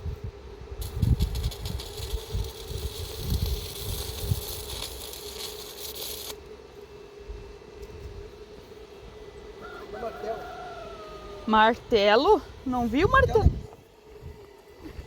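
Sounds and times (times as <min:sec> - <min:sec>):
welding arc crackling and hissing: 0:00.0 - 0:06.9, 0:11.4 - 0:15.0
welding machine hum: 0:00.0 - 0:15.0.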